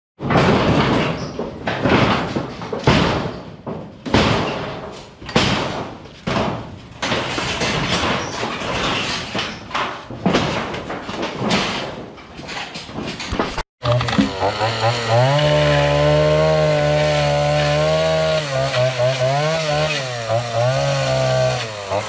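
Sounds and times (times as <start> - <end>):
heavy thuds and knocks: 0.2 - 22.0.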